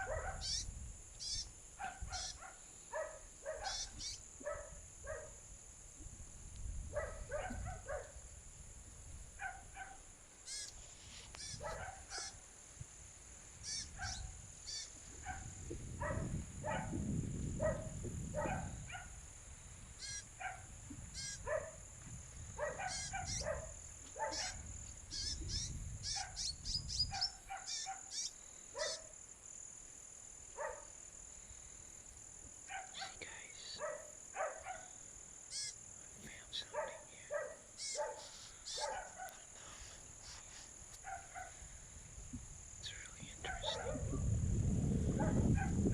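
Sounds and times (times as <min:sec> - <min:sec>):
low wind rumble: 0:00.0 - 0:02.3, 0:03.9 - 0:10.3, 0:11.5 - 0:27.5, 0:41.2 - 0:45.9
songbird chirping: 0:00.0 - 0:08.3, 0:09.5 - 0:12.8, 0:13.4 - 0:15.7, 0:19.7 - 0:21.8, 0:22.6 - 0:29.2, 0:30.8 - 0:41.5, 0:42.8 - 0:44.2
high insect drone: 0:00.0 - 0:45.9.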